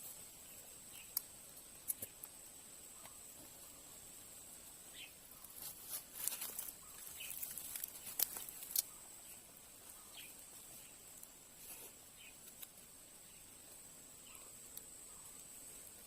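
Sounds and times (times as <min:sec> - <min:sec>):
sharp clicks and handling noises: 0:05.6 - 0:08.9.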